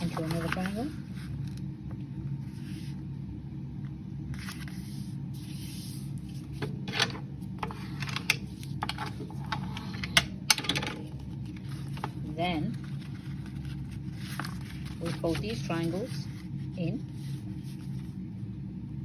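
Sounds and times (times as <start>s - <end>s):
paper rustling and creasing: 0.0s - 3.1s, 3.8s - 10.2s, 10.9s - 18.5s
low hum: 0.0s - 19.0s.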